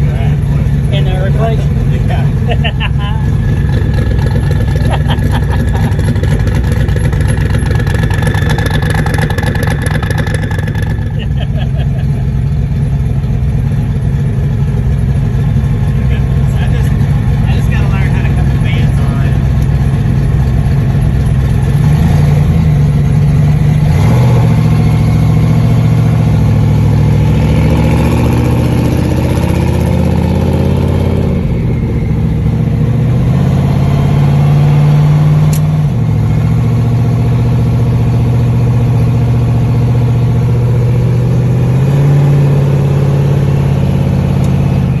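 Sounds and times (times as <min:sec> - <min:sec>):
car engine accelerating: 0:00.0 - 0:45.0.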